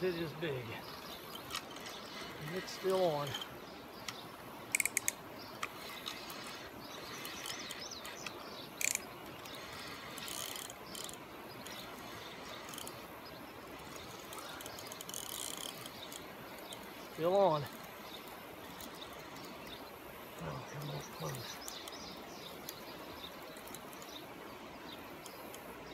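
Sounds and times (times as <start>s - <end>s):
steady background hiss: 0.0s - 25.9s
fishing reel clicking: 1.3s - 3.5s, 4.7s - 13.0s, 13.8s - 16.9s.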